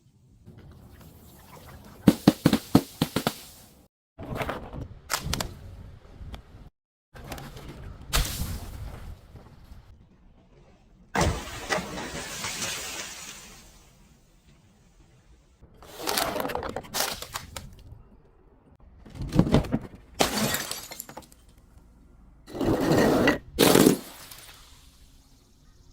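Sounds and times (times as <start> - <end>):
glass breaking and shattering: 20.2 - 21.4.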